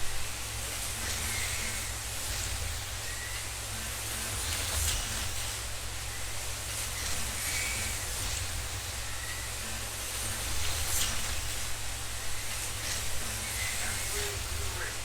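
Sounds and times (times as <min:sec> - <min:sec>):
constant low hum: 0:00.0 - 0:15.0
slot cars running on a track: 0:00.0 - 0:15.0
faint high whines: 0:09.0 - 0:15.0.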